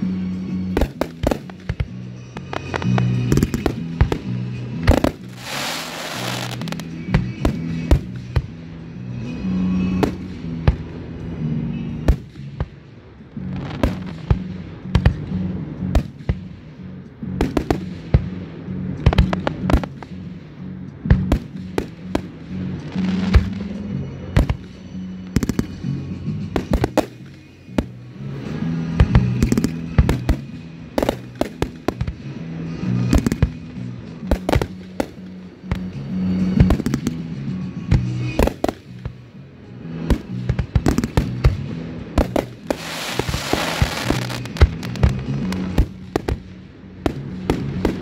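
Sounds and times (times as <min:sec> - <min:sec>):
music: 0:00.0 - 0:48.0
fireworks bursting with sharp bangs: 0:00.1 - 0:48.0
firework hissing: 0:04.9 - 0:06.9, 0:42.2 - 0:46.3.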